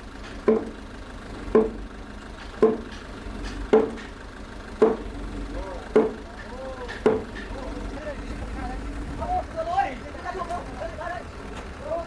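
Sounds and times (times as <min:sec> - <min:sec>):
mallet striking timber: 0:00.2 - 0:00.8, 0:01.5 - 0:04.2, 0:04.8 - 0:05.2, 0:05.9 - 0:07.7.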